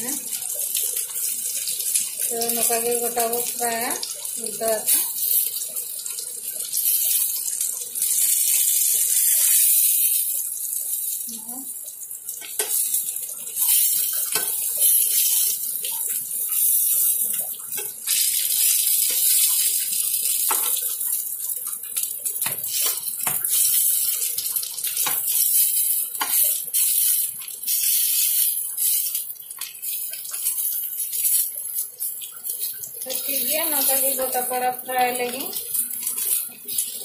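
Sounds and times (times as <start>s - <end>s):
frying in oil sizzling: 0.0s - 37.0s
oil pops and crackles: 13.6s - 21.2s, 21.8s - 31.9s.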